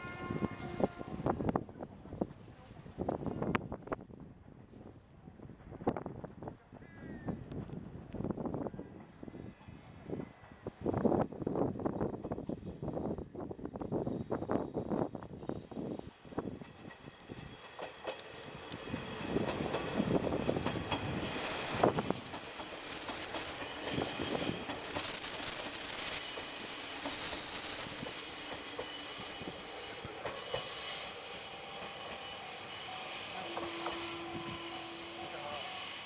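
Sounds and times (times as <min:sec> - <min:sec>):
diesel railcar passing: 0:08.5 - 0:36.0
high wheel squeal: 0:21.0 - 0:36.0.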